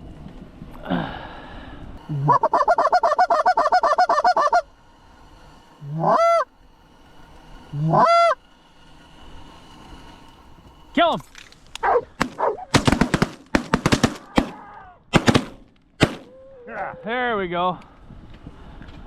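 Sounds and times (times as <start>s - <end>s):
goose honking and clucking: 2.0s - 4.7s, 5.8s - 6.4s, 7.8s - 8.4s.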